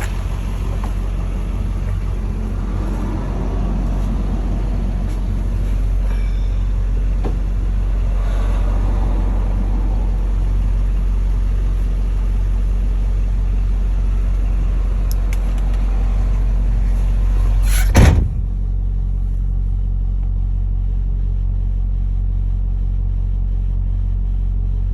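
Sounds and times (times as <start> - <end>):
truck engine idling: 0.0 - 24.9
loud thump: 17.6 - 18.6.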